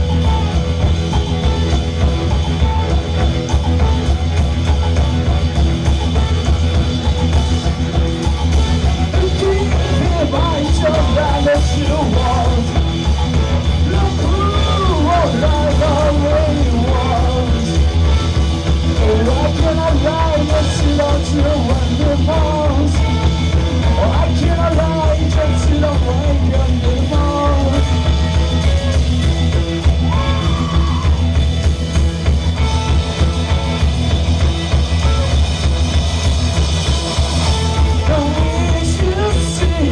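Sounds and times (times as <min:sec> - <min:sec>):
rock band jamming: 0:00.0 - 0:39.9
person singing and yelling: 0:08.5 - 0:29.0, 0:29.9 - 0:31.4, 0:37.6 - 0:39.9.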